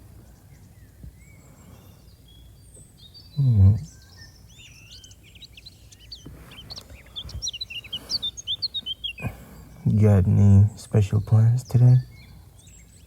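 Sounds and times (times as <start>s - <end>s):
small birds chirping: 0.0s - 13.0s
man humming: 3.4s - 3.9s.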